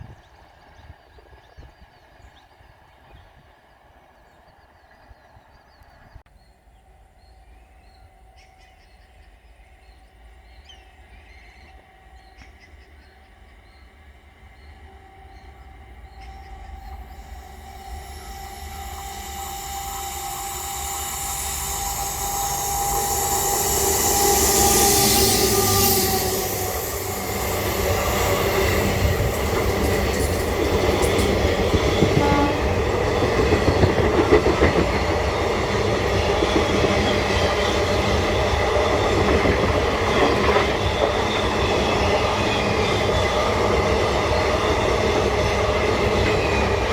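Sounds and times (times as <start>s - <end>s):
passenger train passing: 0.0s - 46.9s
train wheels clattering on rail joints: 16.0s - 46.9s.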